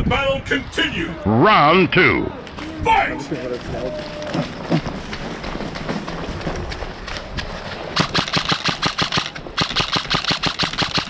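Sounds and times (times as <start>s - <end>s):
airsoft guns firing: 8.0s - 11.0s.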